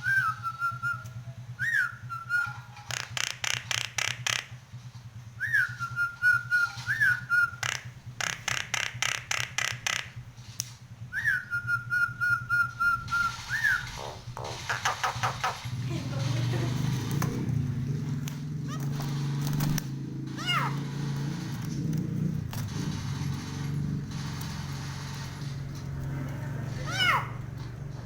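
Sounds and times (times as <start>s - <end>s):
myna whistling: 0.0s - 2.8s, 5.4s - 7.9s, 11.1s - 14.2s
rapid clicking bird notes: 0.1s - 28.0s
steady low hum: 3.9s - 28.0s.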